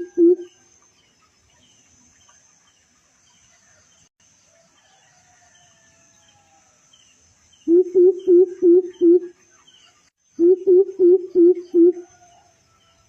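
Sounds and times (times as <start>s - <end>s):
deep bird hooting: 0.0s - 0.5s, 7.7s - 9.3s, 10.4s - 12.1s
faint bird chirps: 7.6s - 13.0s.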